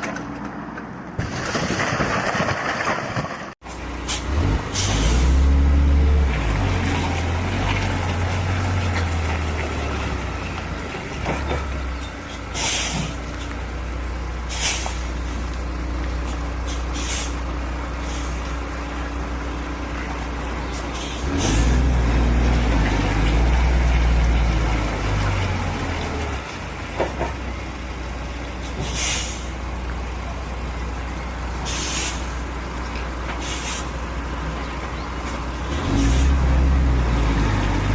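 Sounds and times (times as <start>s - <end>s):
diesel truck engine running: 3.6s - 37.9s
air brake hisses: 16.7s - 17.4s, 28.7s - 29.5s, 31.6s - 32.3s, 33.4s - 33.9s.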